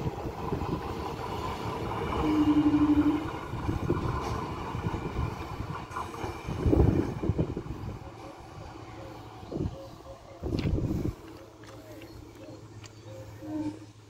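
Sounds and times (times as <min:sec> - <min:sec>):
train wheels rumbling and clattering: 0:00.0 - 0:09.4.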